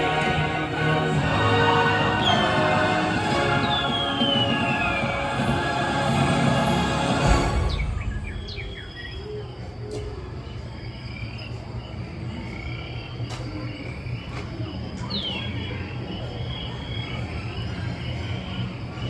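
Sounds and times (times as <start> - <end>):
high chirps: 0.0 - 9.6
steady low rumble: 0.0 - 10.8.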